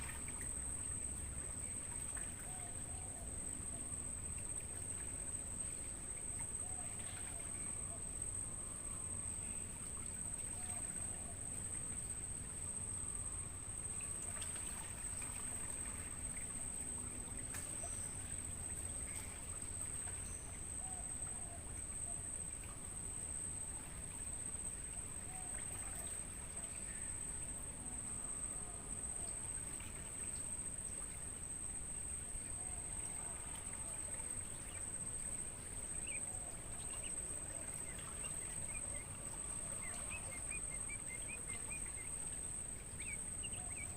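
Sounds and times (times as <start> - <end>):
crickets trilling: 0.0 - 43.9
faint bird chirps: 32.4 - 43.9.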